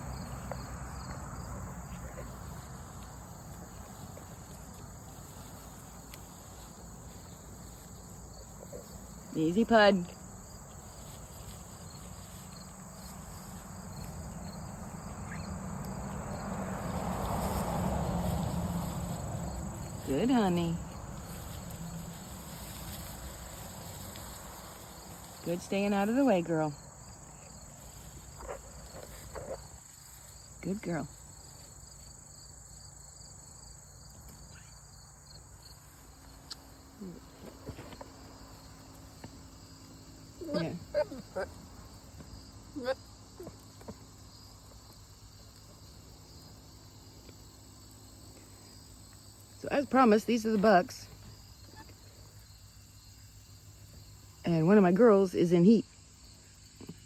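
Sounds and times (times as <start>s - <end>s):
crickets chirring: 0.0s - 57.0s
insect trill: 0.0s - 57.0s.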